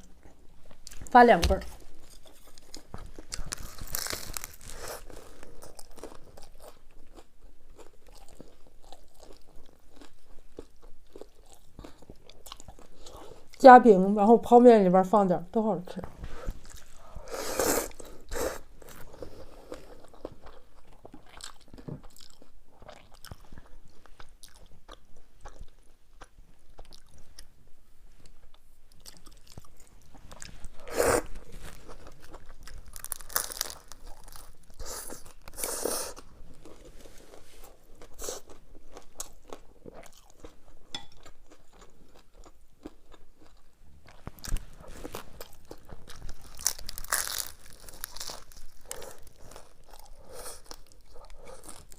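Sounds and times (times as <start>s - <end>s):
crunchy chewing and bites: 1.7s - 13.1s, 29.0s - 40.6s, 41.2s - 51.9s.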